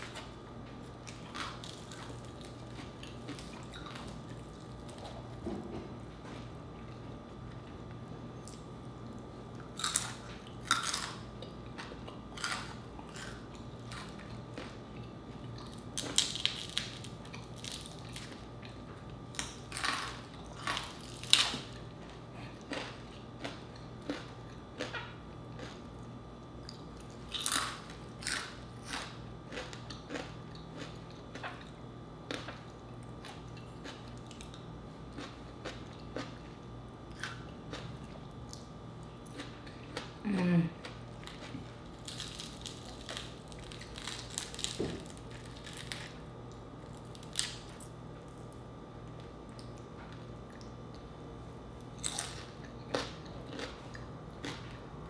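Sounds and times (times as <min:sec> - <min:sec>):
crunching fried skin: 0:00.0 - 0:05.4, 0:09.6 - 0:26.0, 0:26.7 - 0:31.7, 0:40.8 - 0:50.4, 0:51.8 - 0:54.9
faint steady hum: 0:00.0 - 0:55.0.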